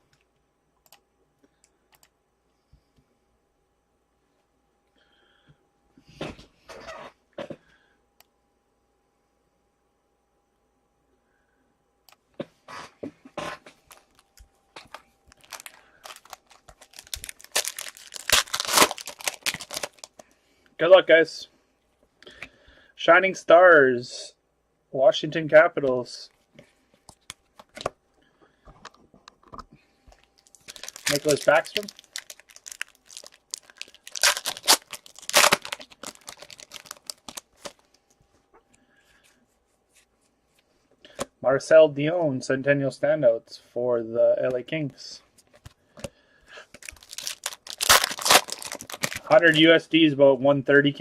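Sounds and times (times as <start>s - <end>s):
packaging crinkling and tearing: 13.8s - 20.2s, 30.2s - 38.0s, 46.7s - 49.7s.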